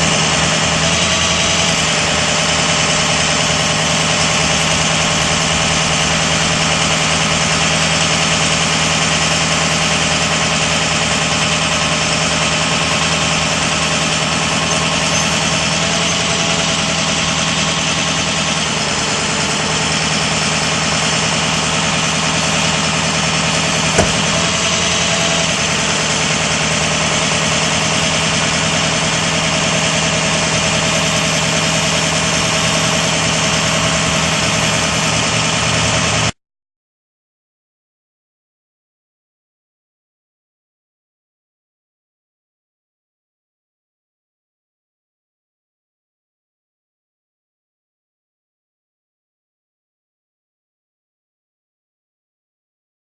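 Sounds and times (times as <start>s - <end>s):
diesel engine idling: 0.0s - 36.3s.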